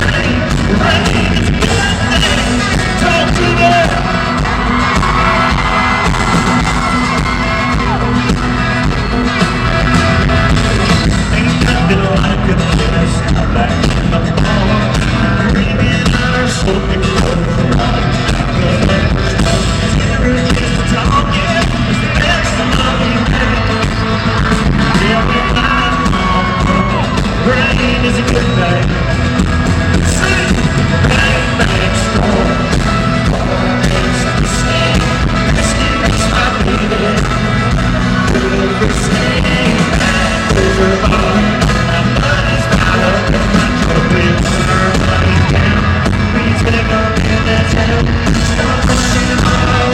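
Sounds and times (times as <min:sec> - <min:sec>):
live country-rock band: 0:00.0 - 0:49.9
person singing: 0:00.0 - 0:49.9.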